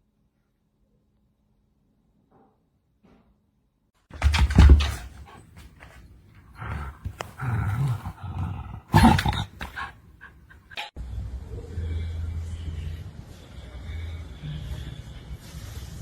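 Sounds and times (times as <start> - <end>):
pet animal vocalizing: 4.2 - 10.8.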